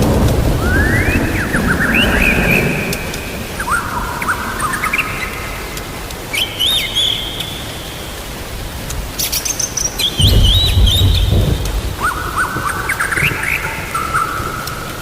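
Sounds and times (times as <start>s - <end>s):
low rumble of thunder: 0.0s - 4.7s, 10.2s - 15.0s
steady rain hiss: 0.0s - 15.0s
songbird chirps: 0.6s - 15.0s.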